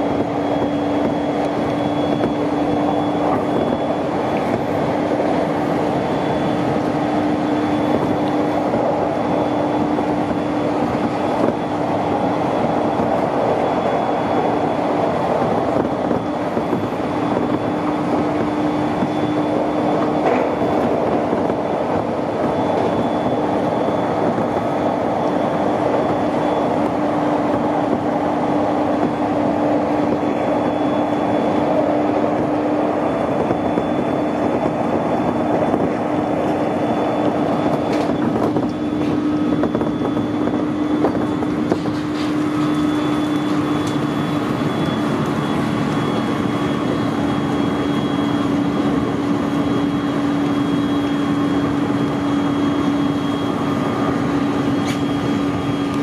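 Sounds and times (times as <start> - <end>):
constant electric hum: 0.0 - 56.0
wheels rumbling on rail: 0.0 - 56.0.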